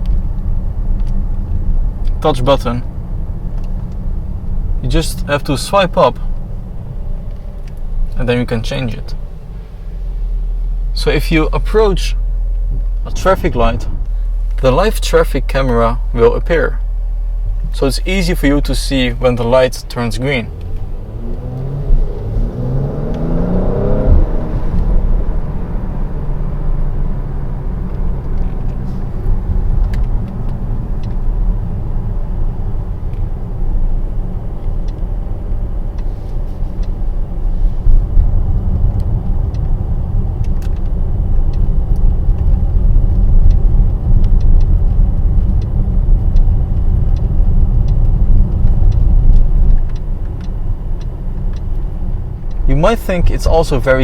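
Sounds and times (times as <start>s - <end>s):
car engine: 0.0s - 54.0s
road noise: 0.0s - 54.0s.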